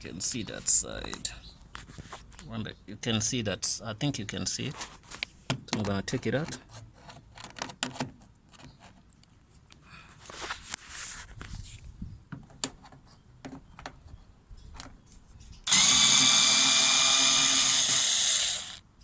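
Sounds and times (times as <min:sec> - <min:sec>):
electric drill-driver running: 0:15.7 - 0:18.8.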